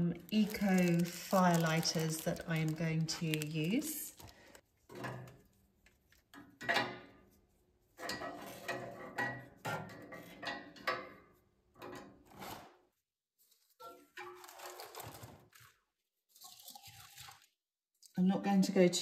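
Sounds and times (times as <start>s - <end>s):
stove knocks and rattles: 6.3s - 7.2s, 8.0s - 12.2s.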